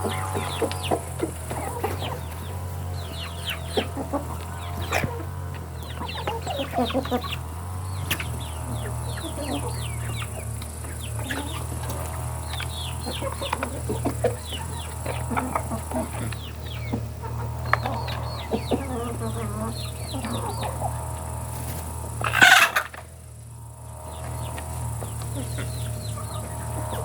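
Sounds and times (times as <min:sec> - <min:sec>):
chickens clucking: 0:00.0 - 0:27.0
steady low hum: 0:00.0 - 0:27.0.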